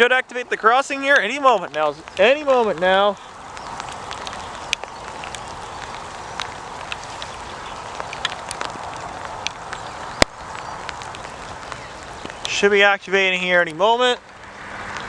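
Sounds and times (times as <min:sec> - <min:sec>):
outdoor background hiss: 0:00.0 - 0:15.0
light clicks: 0:03.5 - 0:12.5.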